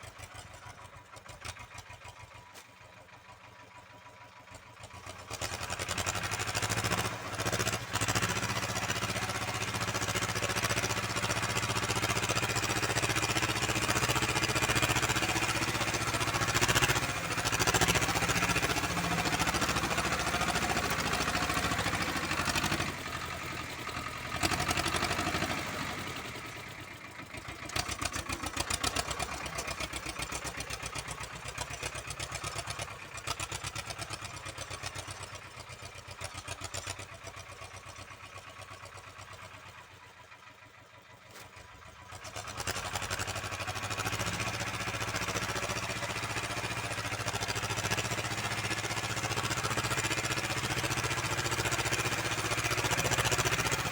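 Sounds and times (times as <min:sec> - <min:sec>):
tractor engine running under load: 0:00.0 - 0:53.9
rotary tiller churning soil: 0:42.3 - 0:53.9.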